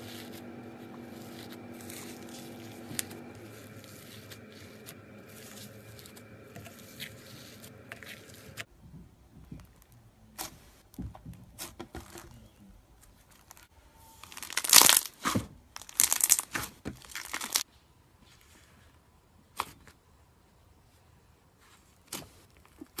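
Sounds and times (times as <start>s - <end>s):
slime crackling and tearing: 14.2s - 17.6s.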